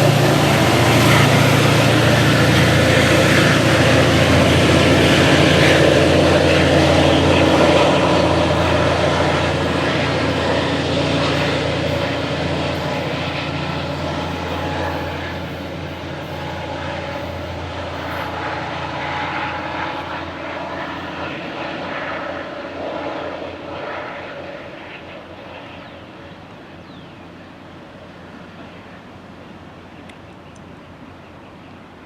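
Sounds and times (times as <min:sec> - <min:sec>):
diesel locomotive rumbling: 0:00.0 - 0:22.4.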